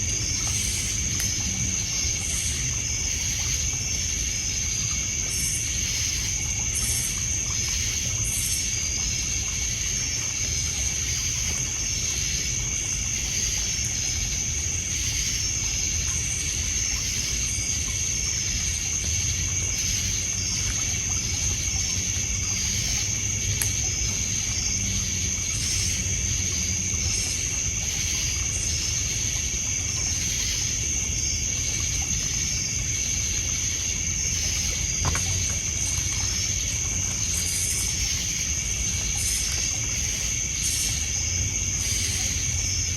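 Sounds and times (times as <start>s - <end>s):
crickets trilling: 0.0s - 42.9s
water lapping on pebbles: 0.0s - 42.9s
wood fire popping: 35.0s - 36.8s.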